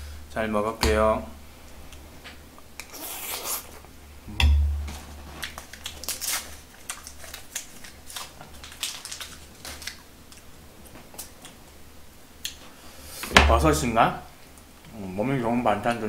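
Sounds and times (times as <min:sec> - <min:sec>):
low thump: 0:04.3 - 0:05.2
wet chewing clicks and crunches: 0:05.3 - 0:11.8.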